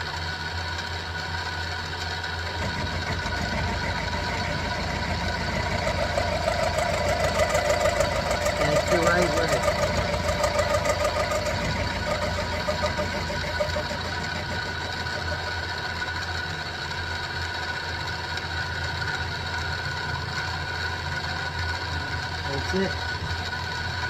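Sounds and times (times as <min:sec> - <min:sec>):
motor and gear whine: 0:02.3 - 0:16.6
milling machine cutting steel: 0:02.5 - 0:16.2
low hum: 0:02.6 - 0:15.6.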